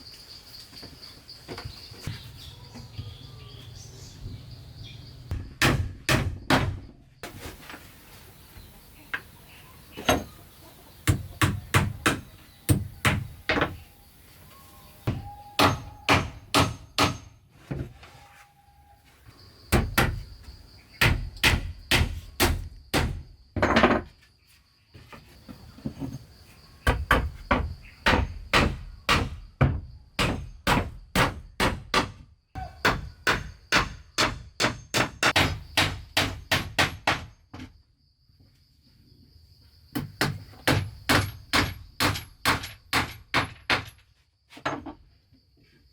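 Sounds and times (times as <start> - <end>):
hammer striking wood: 5.3 - 6.9, 11.0 - 13.8, 15.1 - 17.4, 21.0 - 23.2, 26.9 - 32.2, 32.8 - 37.4, 40.0 - 43.9.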